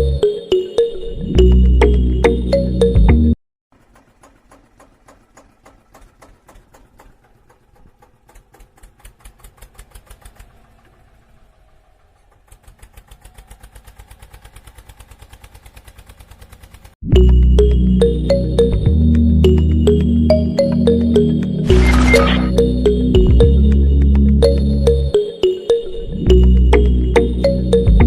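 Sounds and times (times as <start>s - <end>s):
small motor ticking: 3.8s - 11.0s, 12.2s - 17.0s.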